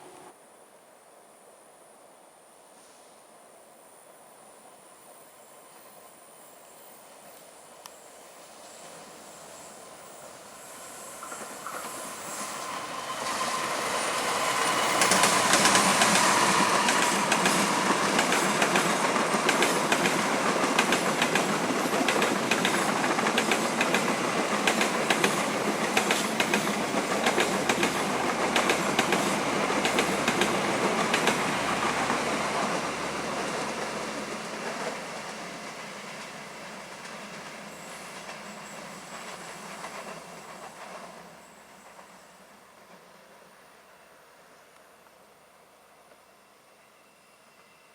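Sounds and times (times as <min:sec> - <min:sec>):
train passing: 0:00.0 - 0:00.4, 0:03.5 - 0:47.9
train wheels clacking on rails: 0:10.2 - 0:43.4.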